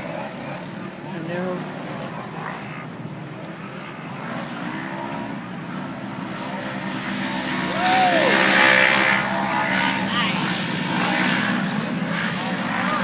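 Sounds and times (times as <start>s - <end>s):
race vehicle engine under load: 0.0s - 13.0s.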